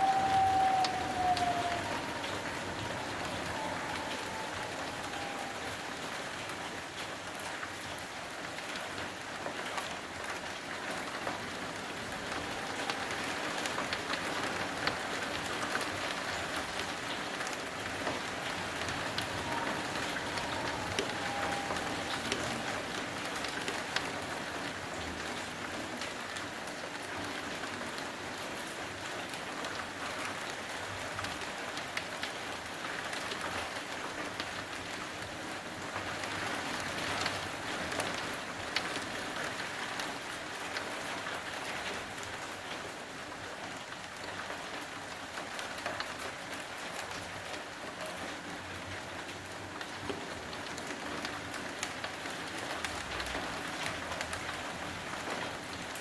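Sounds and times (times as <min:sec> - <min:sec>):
raindrops ticking: 0:00.0 - 0:28.1
steady rain hiss: 0:00.0 - 0:56.0.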